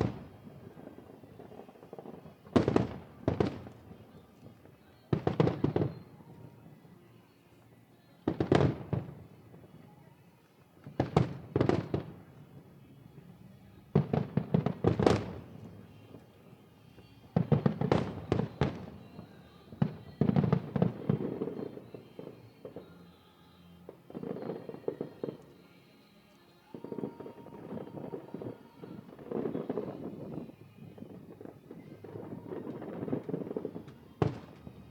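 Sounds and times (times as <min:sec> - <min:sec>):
fireworks bursting: 0:00.0 - 0:34.9.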